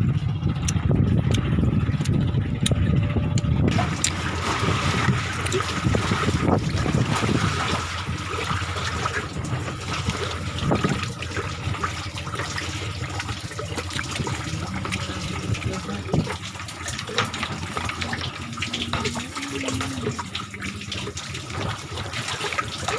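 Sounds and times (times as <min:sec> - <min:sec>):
low steady hum: 0:00.0 - 0:22.9
water splashing along boat hull: 0:00.0 - 0:22.9.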